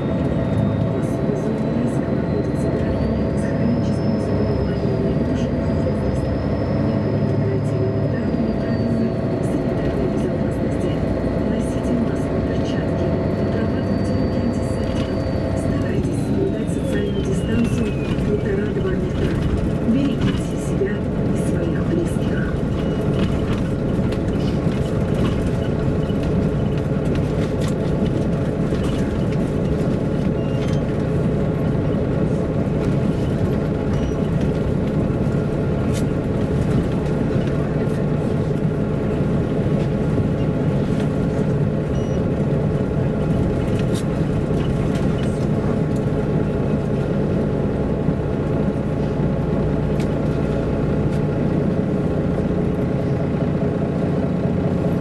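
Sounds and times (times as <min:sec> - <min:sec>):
bus diesel engine rumbling: 0:00.0 - 0:55.0
faint cabin rattles: 0:15.1 - 0:54.7.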